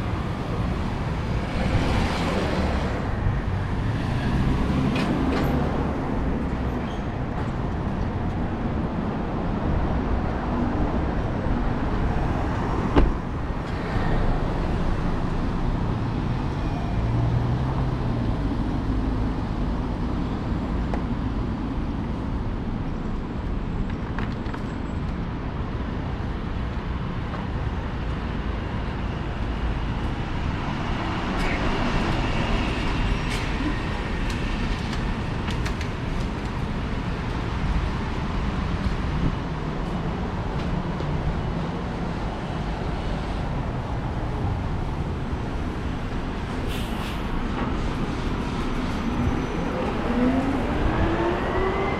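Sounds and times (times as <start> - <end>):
passing motor vehicles: 0.0 - 22.8, 25.1 - 51.9.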